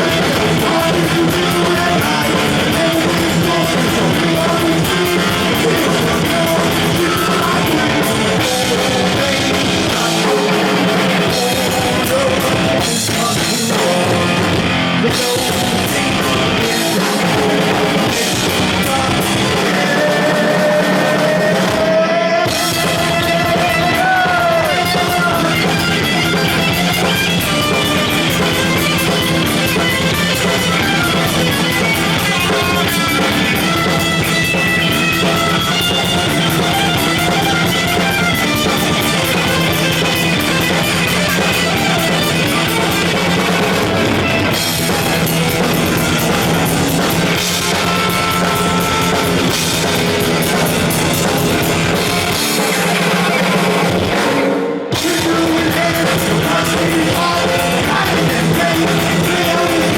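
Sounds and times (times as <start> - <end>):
heavy metal band playing: 0.0 - 59.9
bending guitar notes: 22.5 - 55.1.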